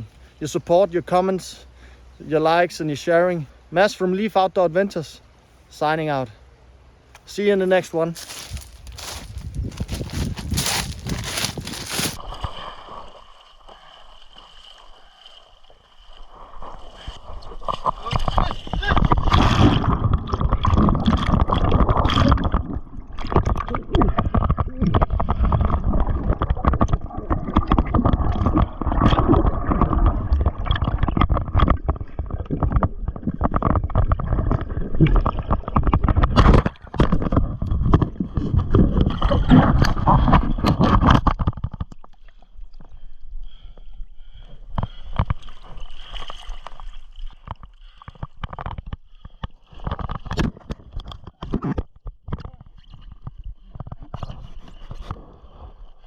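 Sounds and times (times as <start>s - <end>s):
water sloshing against kayak hull: 8.2s - 12.5s.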